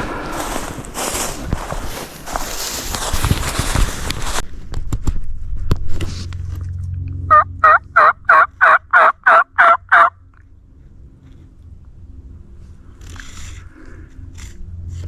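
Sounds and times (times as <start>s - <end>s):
wild turkey yelping: 7.3s - 10.1s.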